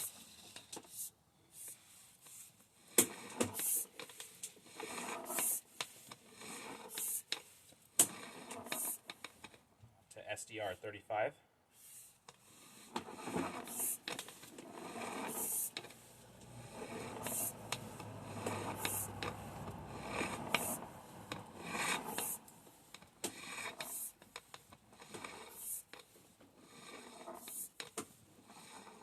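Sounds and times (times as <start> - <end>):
cable rubbing and scraping in pipe: 0.0 - 9.6, 11.8 - 29.0.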